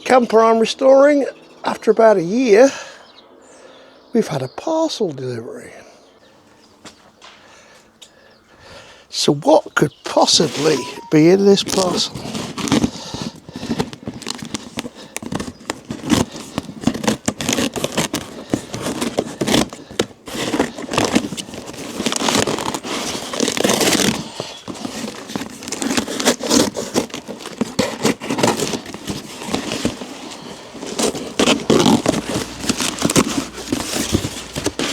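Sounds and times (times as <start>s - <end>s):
cardboard box being torn open: 13.8s - 34.9s.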